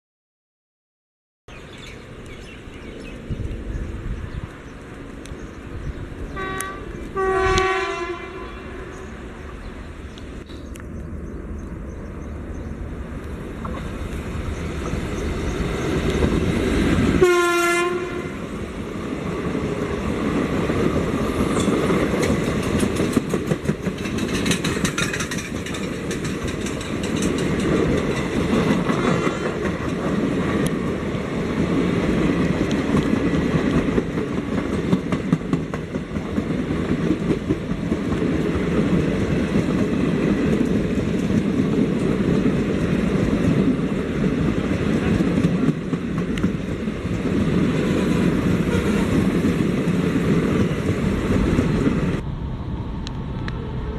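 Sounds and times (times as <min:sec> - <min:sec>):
train rumble: 0:01.5 - 0:53.9
train horn: 0:06.3 - 0:09.3, 0:17.2 - 0:18.6, 0:48.6 - 0:49.3
wheels clacking over rail joints: 0:19.5 - 0:52.2.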